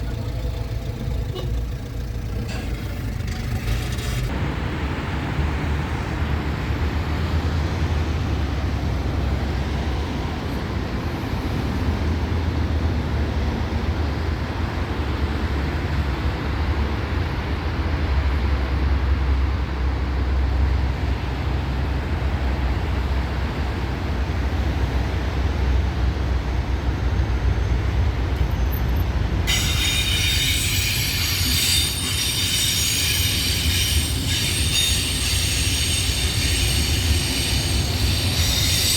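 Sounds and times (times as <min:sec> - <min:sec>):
train wheels rumbling on track: 0:00.0 - 0:38.9
high-pitched squeal: 0:29.5 - 0:38.9.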